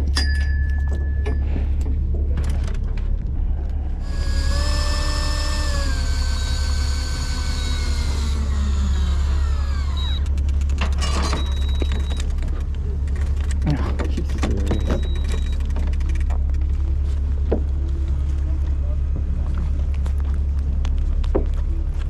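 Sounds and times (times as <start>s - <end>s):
boat engines droning: 0.0s - 22.0s
fishing reel motor whine: 4.0s - 13.6s, 14.4s - 16.4s.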